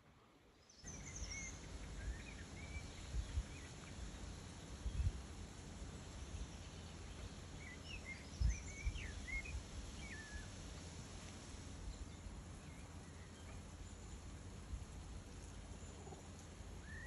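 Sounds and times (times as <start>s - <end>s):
songbird singing whistled notes: 0.6s - 5.2s, 6.0s - 10.5s, 16.8s - 17.0s.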